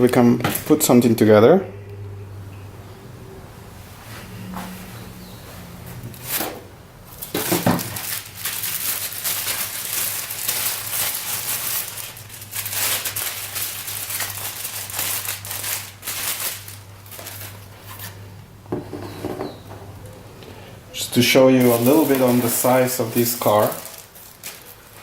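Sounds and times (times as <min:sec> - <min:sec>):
packaging crinkling and rustling: 0:07.1 - 0:18.2, 0:21.2 - 0:25.0.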